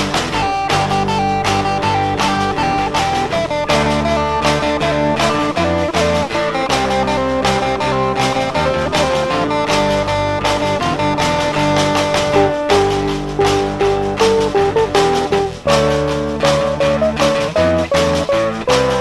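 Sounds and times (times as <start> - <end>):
bass and drums: 0.0 - 19.0
guitar lines: 0.0 - 19.0.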